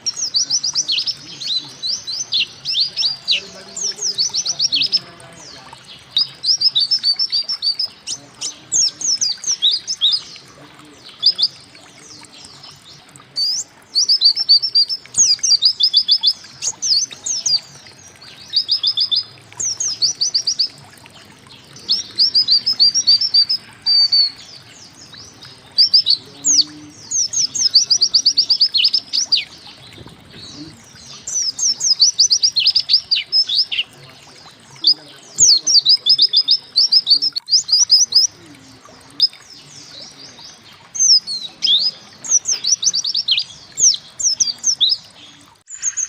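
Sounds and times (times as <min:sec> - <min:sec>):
bird rapid high chirping: 0:00.0 - 0:05.1, 0:21.6 - 0:34.0, 0:39.2 - 0:46.0.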